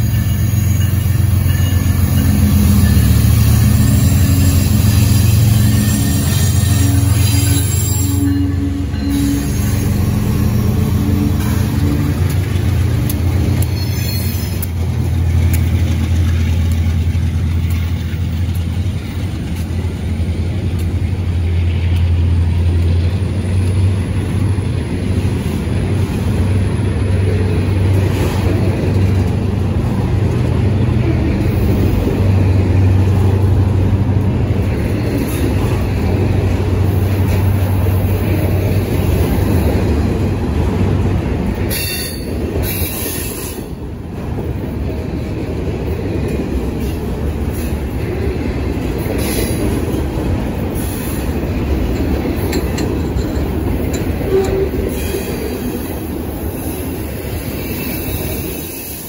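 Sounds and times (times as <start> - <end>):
diesel locomotive engine droning: 0.0 - 59.0
freight car wheels rumbling on rail: 0.0 - 59.0.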